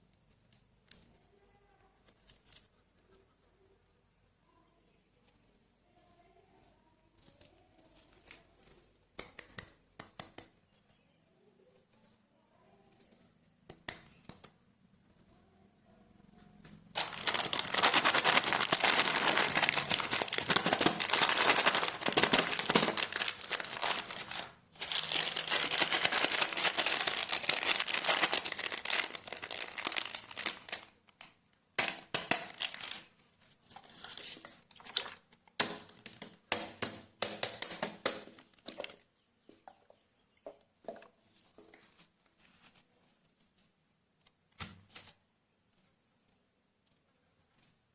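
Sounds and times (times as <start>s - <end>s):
wrapper crinkling: 16.9s - 33.2s, 33.9s - 35.2s.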